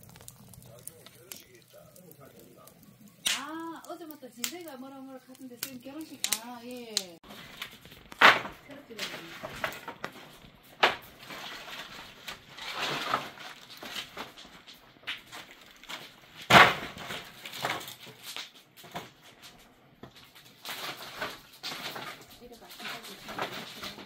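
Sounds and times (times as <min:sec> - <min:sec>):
scraping and shuffling: 0:03.8 - 0:16.1.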